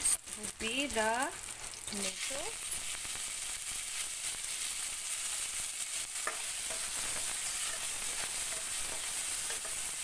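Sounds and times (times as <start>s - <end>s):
onions sizzling in a wok: 0.0s - 10.0s
spatula scraping a pan: 6.1s - 10.0s.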